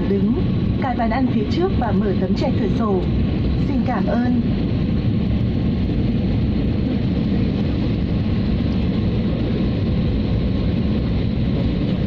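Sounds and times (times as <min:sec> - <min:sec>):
airliner cabin engine rumble: 0:00.0 - 0:12.0.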